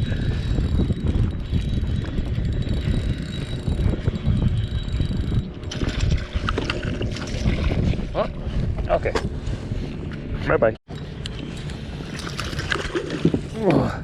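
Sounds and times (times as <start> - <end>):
fishing reel whirring: 0.0 - 7.9
wind rumbling on microphone: 0.0 - 14.0.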